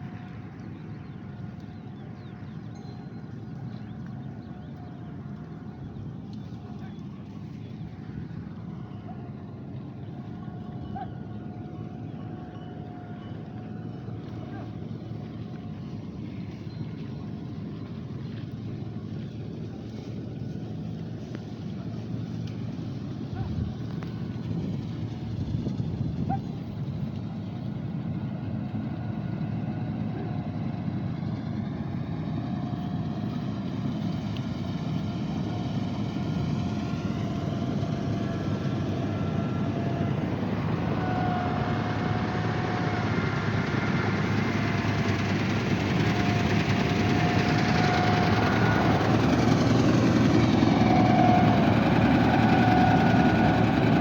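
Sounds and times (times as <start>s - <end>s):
engine running steadily: 0.0s - 54.0s
wavering whine: 31.3s - 54.0s.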